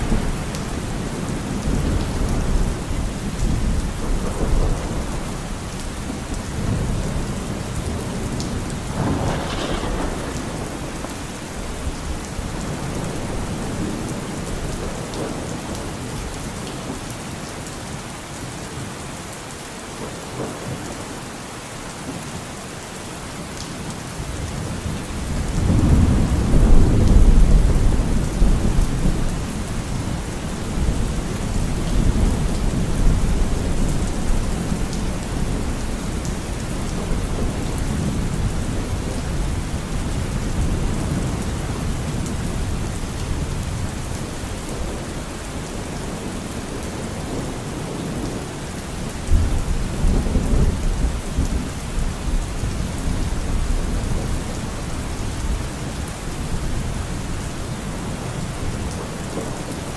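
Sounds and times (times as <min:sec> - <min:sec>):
low rolling thunder: 0:00.0 - 0:16.3, 0:24.2 - 0:59.8
steady rain falling: 0:00.0 - 0:59.9.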